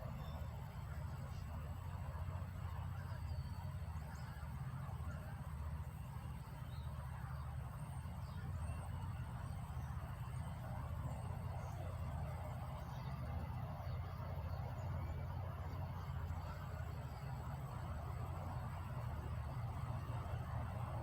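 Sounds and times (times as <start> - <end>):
faint bird chirps: 0.0 - 5.8
low mechanical rumble: 0.0 - 21.0.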